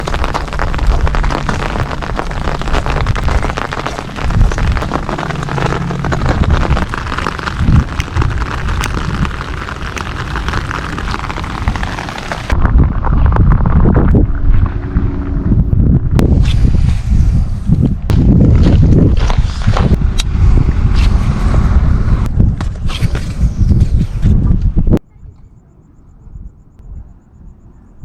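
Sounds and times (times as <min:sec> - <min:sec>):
rain hiss: 0:00.0 - 0:12.6
rain drops pattering: 0:00.0 - 0:14.8
low rumble: 0:00.0 - 0:25.1.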